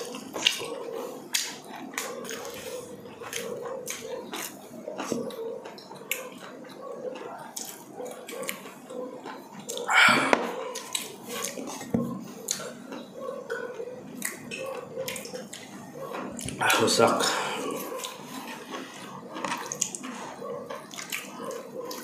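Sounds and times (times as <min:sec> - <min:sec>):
wet chewing and lip smacks: 0:00.0 - 0:22.0
loud mouth or throat sound: 0:09.8 - 0:10.6.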